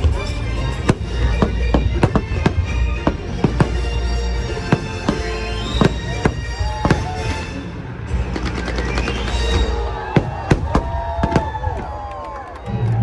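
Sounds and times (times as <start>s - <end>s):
fireworks bursting: 0.0s - 12.6s.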